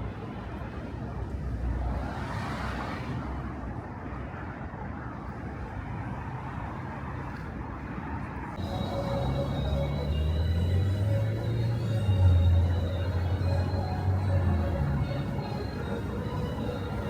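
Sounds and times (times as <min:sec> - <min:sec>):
city street traffic: 0:00.0 - 0:17.0
car passing by: 0:00.1 - 0:17.0.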